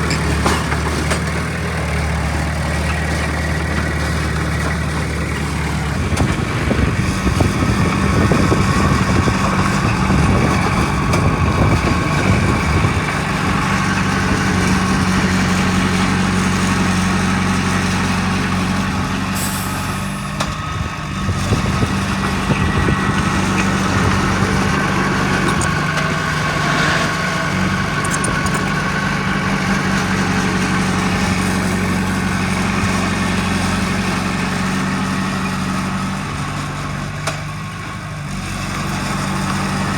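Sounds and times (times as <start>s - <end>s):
heavy diesel engine running: 0.0s - 39.9s
short hiss: 19.4s - 20.3s.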